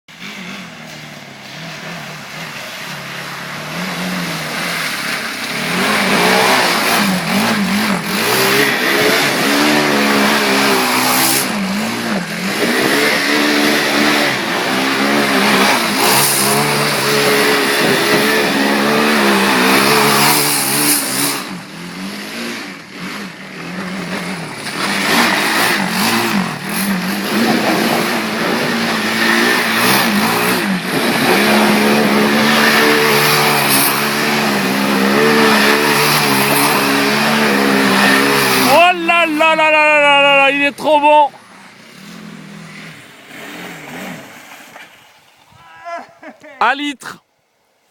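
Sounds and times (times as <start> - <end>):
quad engine revving hard: 0.1 - 44.5.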